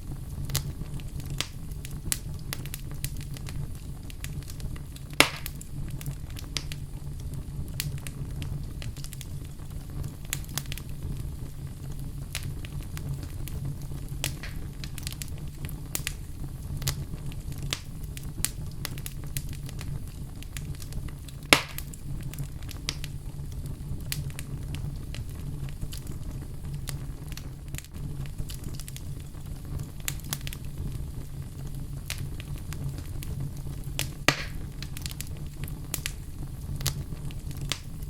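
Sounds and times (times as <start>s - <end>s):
fire crackling and popping: 0.0s - 38.0s
fire rumbling: 0.0s - 38.0s.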